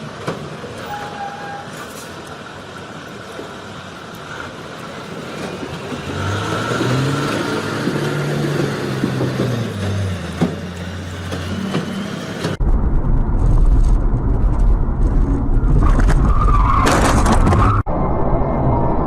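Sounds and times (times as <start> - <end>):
low rumble: 12.6 - 19.0.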